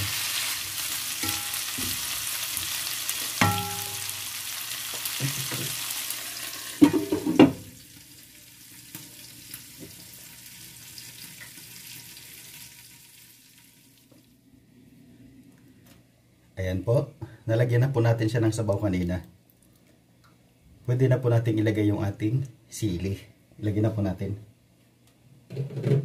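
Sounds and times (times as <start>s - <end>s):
meat sizzling in oil: 0.0s - 14.0s.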